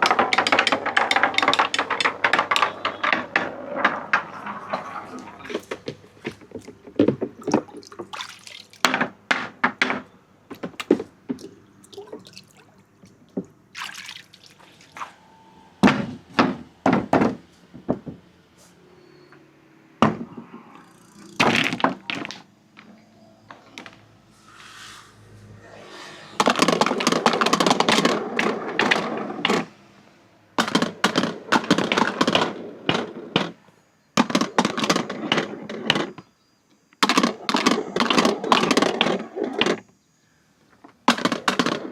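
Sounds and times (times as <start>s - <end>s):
marbles rolling and clacking: 0.0s - 10.0s, 26.4s - 29.7s, 34.2s - 36.1s, 37.0s - 39.8s.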